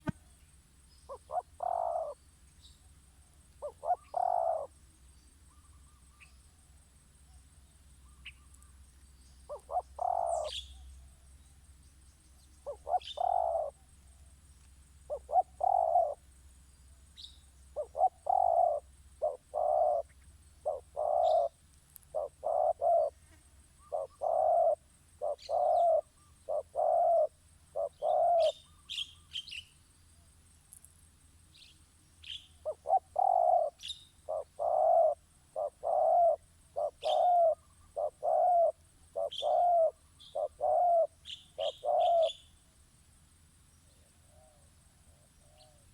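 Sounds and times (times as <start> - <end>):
dove cooing: 1.1 - 2.2, 3.6 - 4.8, 9.5 - 10.8, 12.6 - 13.8, 15.1 - 16.2, 17.7 - 23.2, 23.8 - 28.8, 32.6 - 42.4.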